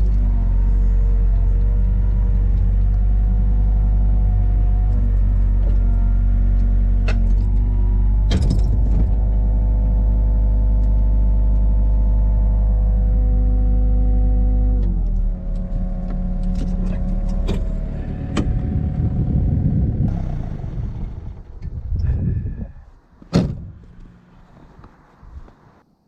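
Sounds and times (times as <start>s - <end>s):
vehicle engine running: 0.0s - 25.8s
rattling clatter: 7.0s - 9.4s.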